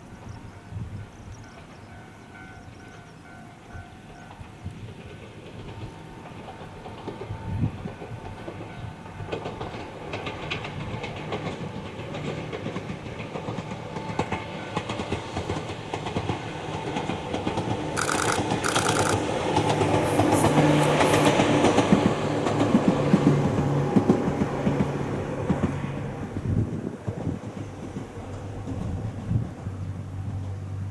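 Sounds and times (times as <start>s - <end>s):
train wheels clicking over rail joints: 9.3s - 24.5s
train motor hum: 18.0s - 22.7s.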